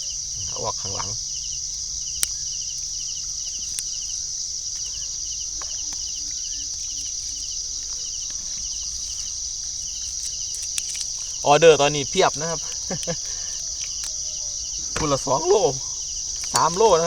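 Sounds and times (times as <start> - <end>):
crickets trilling: 0.0 - 17.0
insect pulsed chirps: 0.0 - 17.0
faint clicks: 4.7 - 17.0.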